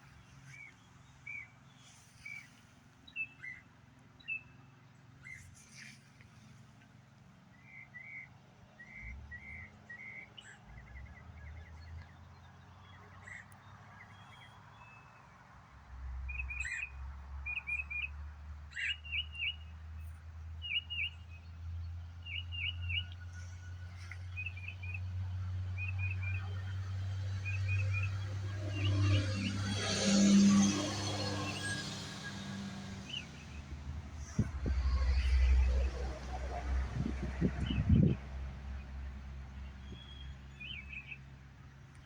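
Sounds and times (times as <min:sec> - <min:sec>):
low steady rumble: 0:21.1 - 0:42.0
small birds chirping: 0:39.6 - 0:41.3.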